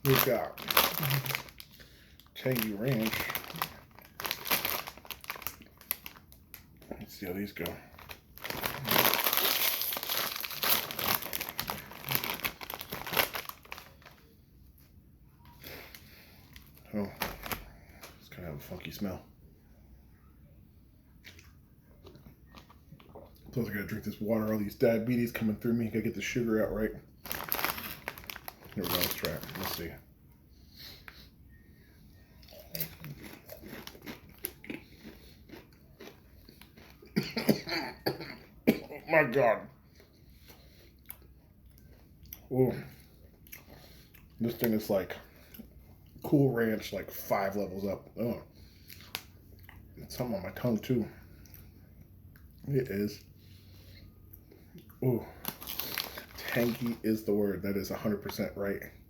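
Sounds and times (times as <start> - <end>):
chip bag crinkling: 0.0 - 14.3, 15.9 - 18.2, 27.2 - 30.0, 32.5 - 37.0, 55.3 - 57.3.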